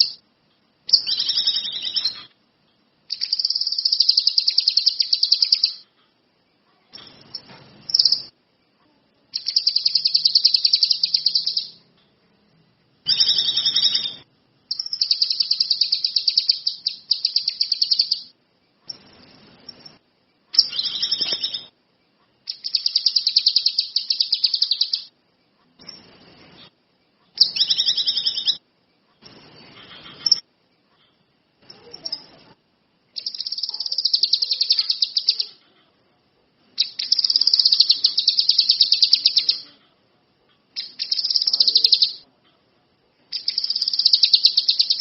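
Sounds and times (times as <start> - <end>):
songbird chattering trills: 0.0 - 0.2, 0.9 - 2.3, 3.1 - 5.8, 9.4 - 11.8, 13.1 - 18.3, 22.5 - 25.1, 33.2 - 35.6, 36.8 - 39.7, 40.8 - 42.2, 43.3 - 45.0.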